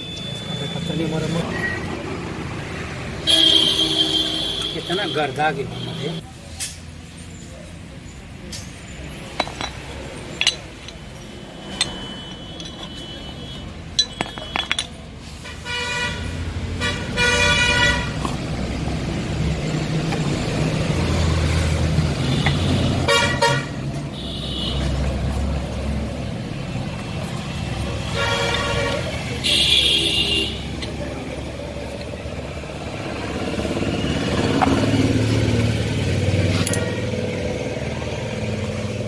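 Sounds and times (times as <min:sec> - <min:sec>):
vehicle engine rumbling: 0:00.0 - 0:39.0
horns honking: 0:03.1 - 0:06.2, 0:11.3 - 0:37.9.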